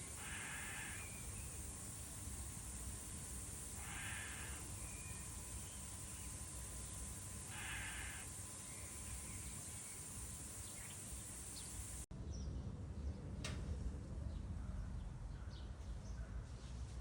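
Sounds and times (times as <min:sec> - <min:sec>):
steady high hiss: 0:00.0 - 0:12.1.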